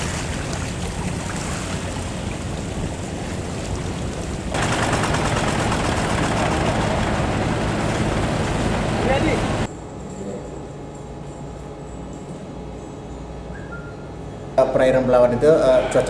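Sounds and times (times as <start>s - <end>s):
boat engine chugging: 0.0s - 9.7s
wind and water rushing: 0.0s - 9.7s.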